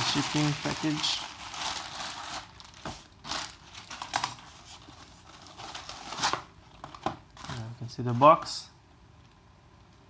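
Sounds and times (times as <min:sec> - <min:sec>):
packaging rustling and crinkling: 0:00.0 - 0:08.5.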